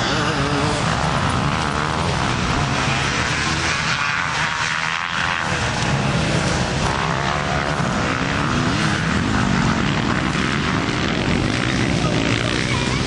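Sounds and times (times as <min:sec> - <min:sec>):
motor drone: 0:00.0 - 0:13.0.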